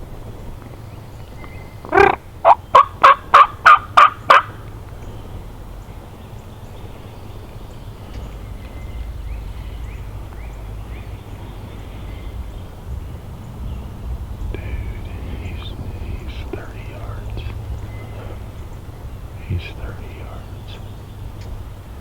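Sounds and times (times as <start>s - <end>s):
turkey yelps: 1.9s - 4.6s.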